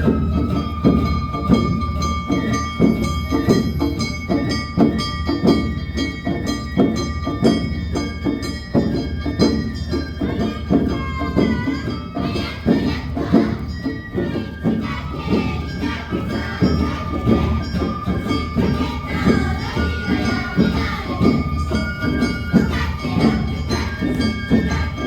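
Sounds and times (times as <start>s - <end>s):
high flute melody: 0.0s - 4.2s, 10.4s - 25.0s
drums beating steady rhythm: 0.0s - 25.0s.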